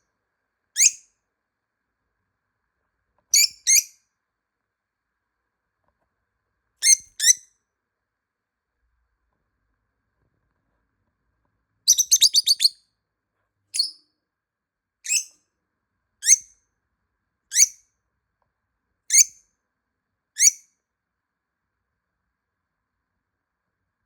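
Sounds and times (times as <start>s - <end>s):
lovebird shrill chirps: 0.8s - 1.0s, 3.3s - 4.0s, 6.8s - 7.5s, 11.9s - 12.8s, 13.8s - 14.0s, 15.0s - 15.4s, 16.2s - 16.5s, 17.5s - 17.8s, 19.1s - 19.3s, 20.4s - 20.6s.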